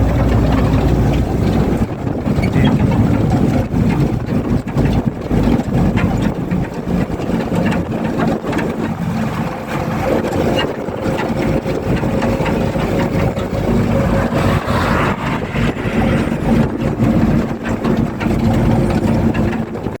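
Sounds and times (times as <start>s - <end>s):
truck engine droning: 11.4s - 18.9s.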